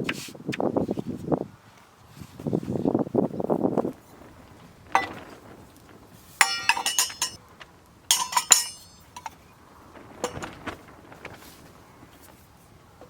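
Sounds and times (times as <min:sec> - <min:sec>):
metal pieces clinking: 0:06.4 - 0:07.4, 0:08.1 - 0:09.3.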